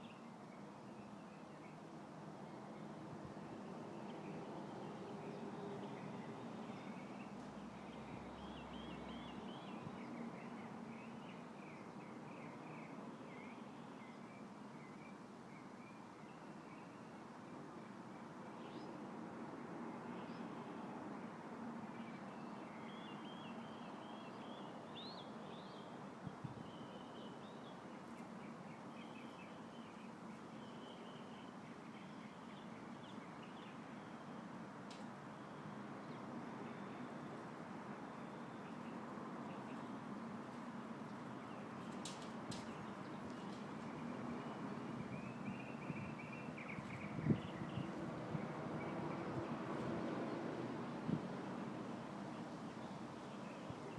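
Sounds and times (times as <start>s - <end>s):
light wind in tree: 0.0s - 53.9s
songbird chirping: 3.5s - 19.1s, 21.9s - 50.6s
light wind hiss: 38.6s - 53.9s.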